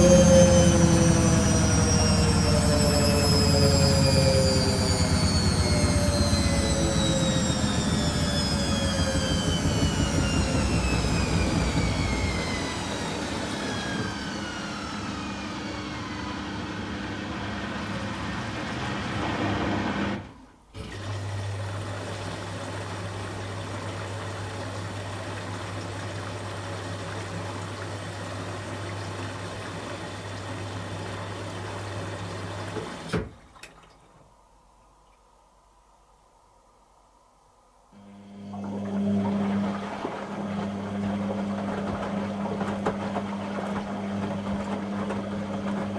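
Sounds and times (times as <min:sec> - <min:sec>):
washing machine spin winding down: 0:00.0 - 0:33.8, 0:38.0 - 0:45.9.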